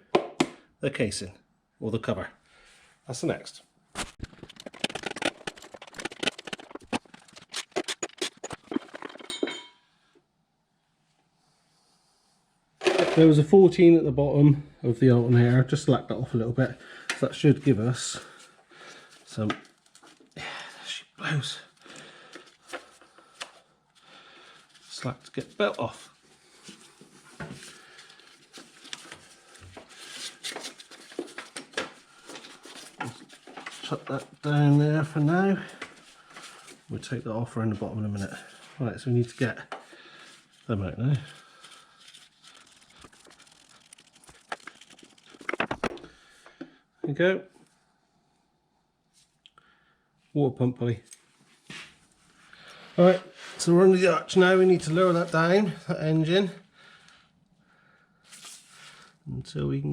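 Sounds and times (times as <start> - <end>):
hands rubbing and clicking on belt: 4.0 - 9.3, 21.7 - 34.7, 38.1 - 46.0
metal tools clinking and clattering: 7.8 - 9.8.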